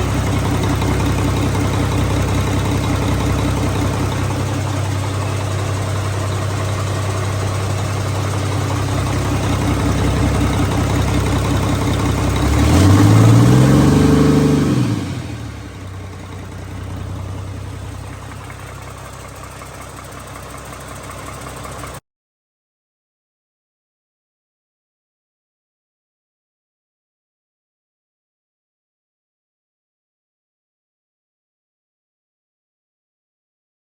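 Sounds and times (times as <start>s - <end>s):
diesel engine idling and revving: 0.0s - 22.0s.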